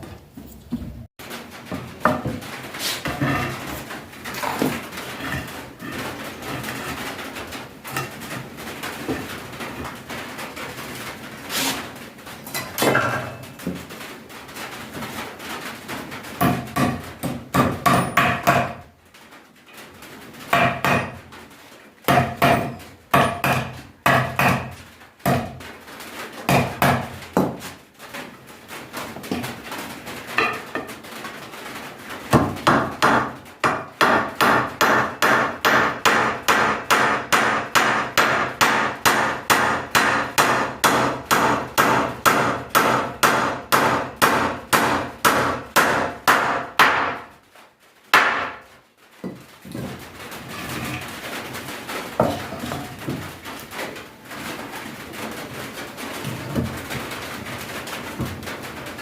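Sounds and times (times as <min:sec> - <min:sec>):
hammer nailing wooden boards: 0:16.4 - 0:18.9, 0:20.5 - 0:21.3, 0:22.1 - 0:25.7, 0:26.4 - 0:27.6, 0:32.3 - 0:47.3, 0:48.1 - 0:48.6.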